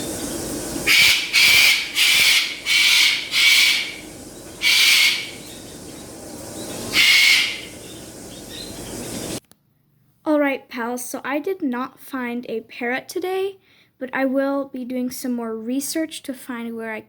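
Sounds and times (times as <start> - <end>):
parrot screeching: 0.8 - 5.5, 6.8 - 7.8.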